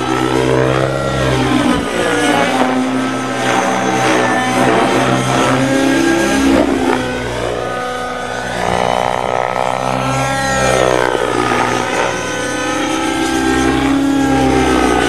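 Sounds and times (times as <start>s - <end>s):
model helicopter engine running: 0.0s - 15.0s.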